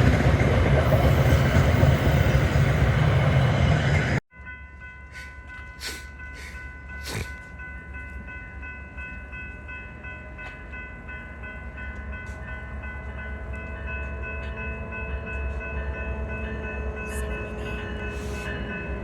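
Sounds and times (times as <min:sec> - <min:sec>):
train rumble: 0:00.0 - 0:04.2.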